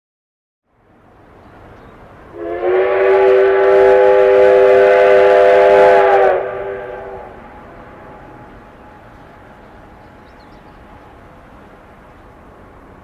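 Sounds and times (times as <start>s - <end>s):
steam locomotive whistle: 2.3s - 9.6s.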